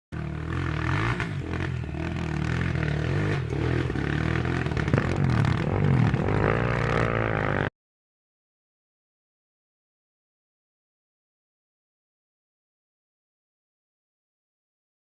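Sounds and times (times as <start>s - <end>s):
motorcycle engines revving: 0.2s - 7.7s
rough clattering noise: 2.5s - 7.6s.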